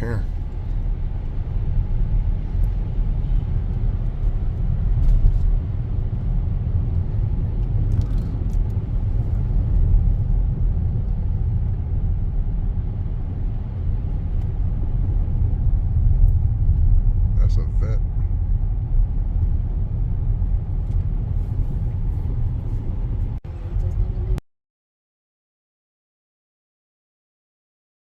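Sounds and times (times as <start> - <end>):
car driving on snowy road: 0.0 - 24.4.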